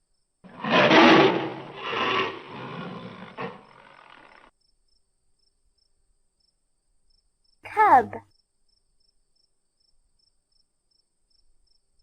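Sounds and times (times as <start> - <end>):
tiger roaring: 0.5 - 4.5.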